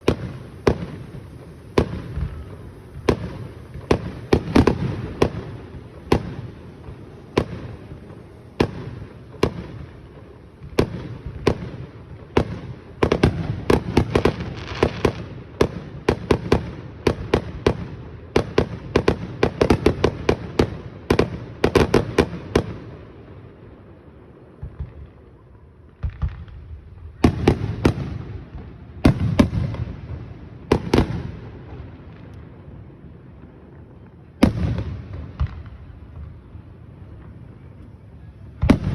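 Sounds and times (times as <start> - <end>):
fireworks bangs and booms: 0.0 - 38.9.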